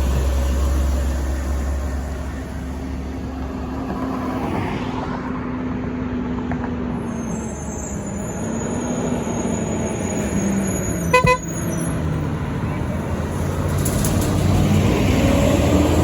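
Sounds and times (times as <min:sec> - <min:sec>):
truck diesel engine running: 0:00.0 - 0:03.8
road noise: 0:00.0 - 0:16.0.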